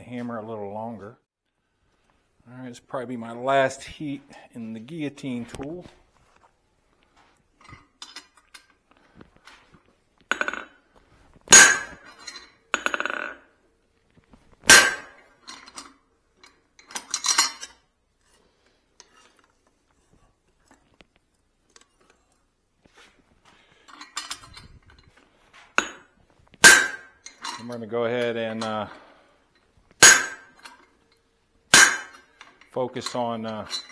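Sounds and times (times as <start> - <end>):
steel tools clanking: 9.5 - 10.8, 11.5 - 13.4, 14.7 - 17.8, 23.6 - 33.9
ringing steel-on-steel hits: 11.5 - 13.3, 14.7 - 15.2, 25.8 - 26.0, 26.6 - 27.7, 30.0 - 30.8, 31.7 - 32.3.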